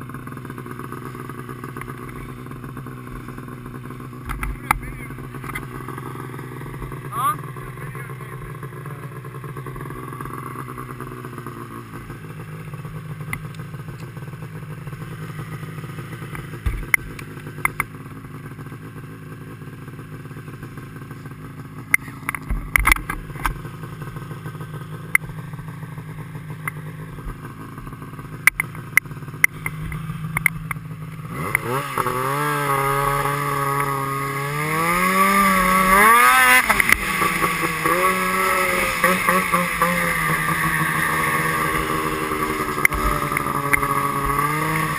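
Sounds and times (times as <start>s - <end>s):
motorcycle engine idling and revving: 0.0s - 44.9s
sharp clicks and knocks: 4.2s - 5.7s, 16.3s - 17.9s, 21.9s - 23.6s, 28.4s - 30.8s, 36.6s - 38.0s, 42.8s - 44.5s.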